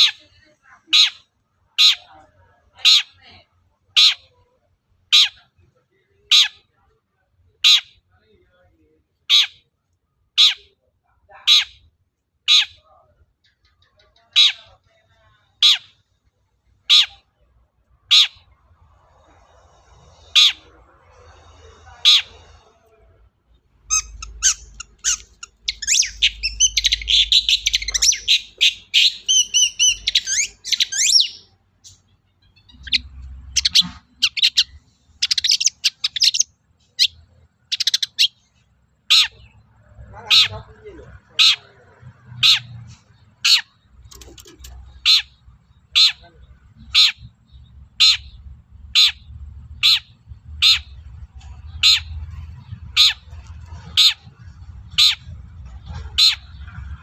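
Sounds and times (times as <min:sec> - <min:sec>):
bird chattering song: 0:00.0 - 0:04.5, 0:09.3 - 0:09.7, 0:11.4 - 0:11.9, 0:12.5 - 0:15.0, 0:15.6 - 0:16.0, 0:16.8 - 0:17.4, 0:18.0 - 0:18.6, 0:23.8 - 0:57.0
shrike harsh calls: 0:18.0 - 0:23.0, 0:23.7 - 0:31.6.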